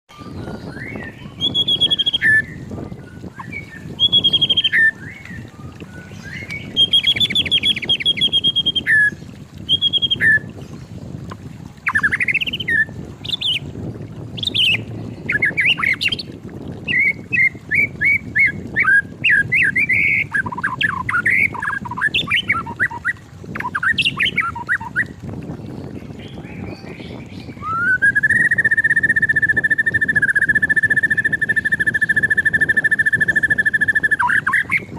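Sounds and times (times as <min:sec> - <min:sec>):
bird singing whistled phrases: 0:00.1 - 0:10.5, 0:11.9 - 0:13.6, 0:14.4 - 0:16.2, 0:16.9 - 0:25.1, 0:26.2 - 0:34.9
long steady bird whistle: 0:00.1 - 0:10.5, 0:27.5 - 0:34.9.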